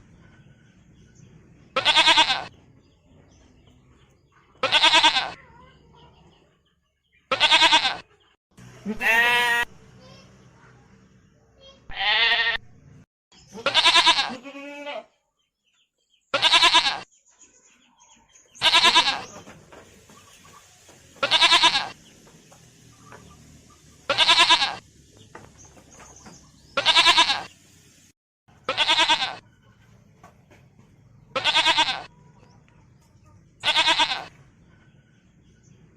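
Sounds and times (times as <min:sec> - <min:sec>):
farm animal bleating: 0:01.7 - 0:02.6, 0:04.6 - 0:05.5, 0:07.3 - 0:08.2, 0:08.8 - 0:09.8, 0:11.9 - 0:12.7, 0:13.4 - 0:15.2, 0:16.3 - 0:17.1, 0:18.6 - 0:19.5, 0:21.2 - 0:22.1, 0:24.1 - 0:24.8, 0:26.7 - 0:27.6, 0:28.5 - 0:29.5, 0:31.3 - 0:32.2, 0:33.6 - 0:34.4.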